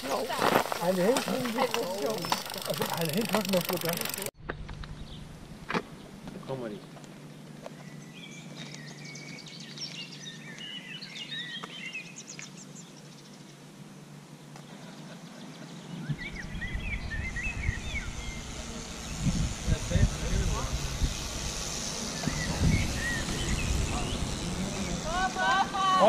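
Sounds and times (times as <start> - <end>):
outdoor hiss: 0.0 - 4.4, 16.3 - 26.0
songbirds twittering: 0.0 - 25.4.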